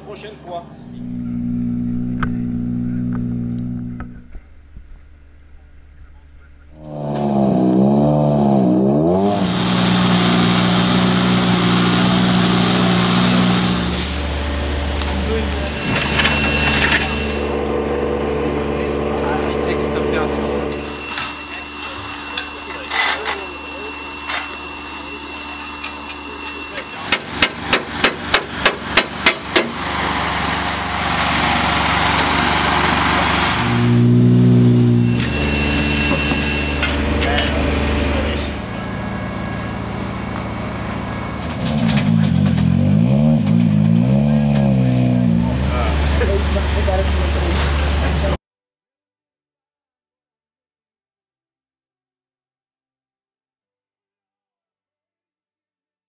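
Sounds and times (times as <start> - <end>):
rally car engine revving: 0.7 - 20.8, 28.8 - 48.4
sharp knocks: 27.1 - 29.8.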